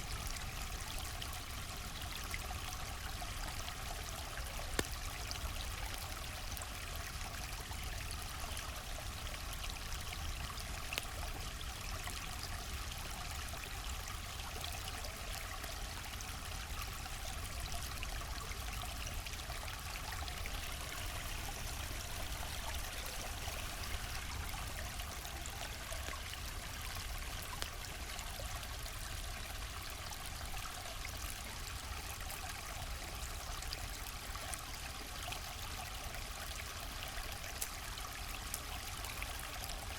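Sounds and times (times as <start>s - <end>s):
river water flowing: 0.0s - 39.9s
campfire crackling: 4.1s - 7.9s, 8.6s - 31.3s.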